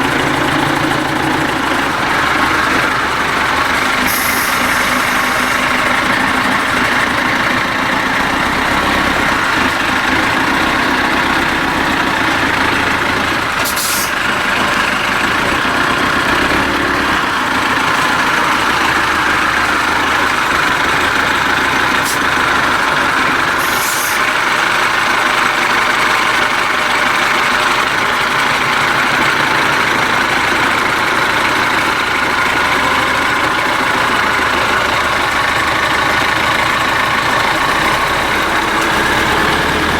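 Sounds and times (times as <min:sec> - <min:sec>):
diesel truck engine running: 0:00.0 - 0:39.9
brief hisses: 0:13.7 - 0:14.2.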